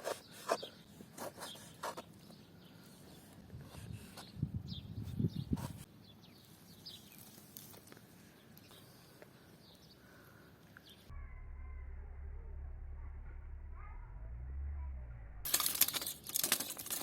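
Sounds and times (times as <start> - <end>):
steady low hum: 11.1 - 15.5.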